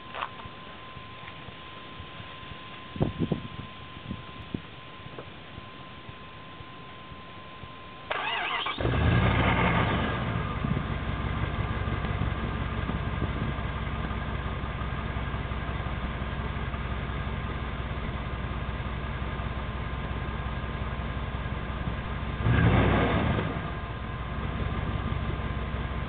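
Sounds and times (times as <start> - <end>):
engine starter cranking: 8.1 - 9.0
loud car engine idling: 8.1 - 26.0.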